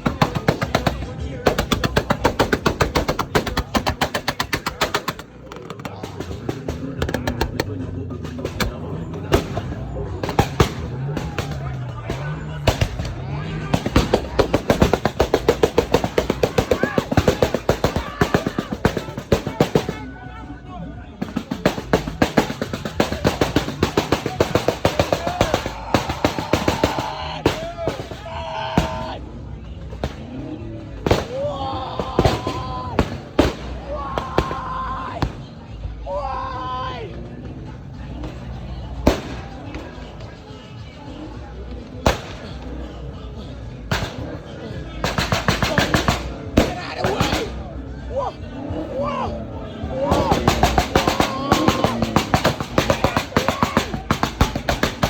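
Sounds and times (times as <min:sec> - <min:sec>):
car engine running: 0:00.0 - 0:18.0
exhaust popping: 0:00.0 - 0:20.1, 0:21.0 - 0:36.0, 0:37.0 - 0:55.0.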